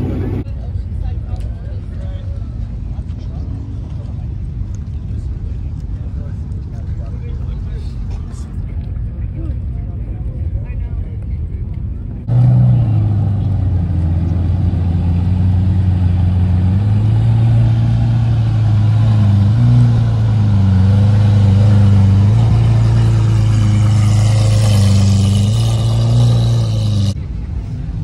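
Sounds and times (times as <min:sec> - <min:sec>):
car engine running: 0:00.0 - 0:00.4, 0:12.2 - 0:27.2.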